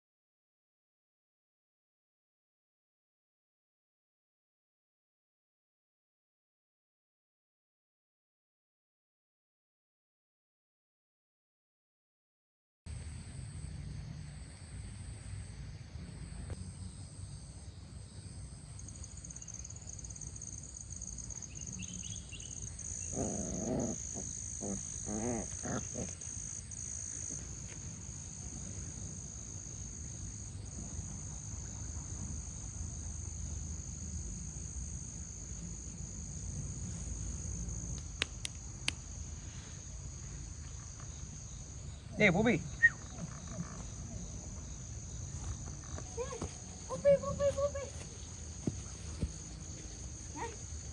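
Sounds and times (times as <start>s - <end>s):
crickets chirring: 12.9s - 50.9s.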